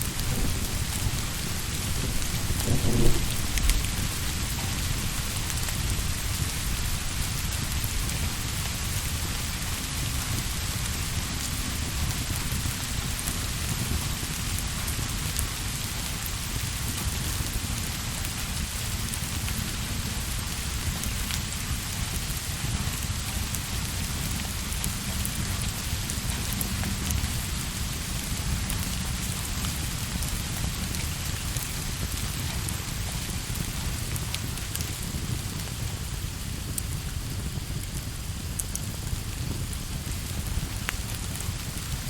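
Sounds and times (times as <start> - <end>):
low rumble: 0.0 - 8.6
rain falling: 0.0 - 42.0.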